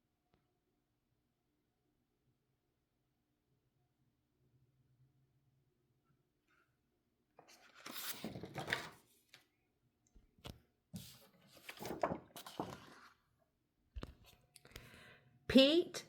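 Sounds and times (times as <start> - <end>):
paper rustling and handling: 7.4 - 9.4, 11.0 - 13.2.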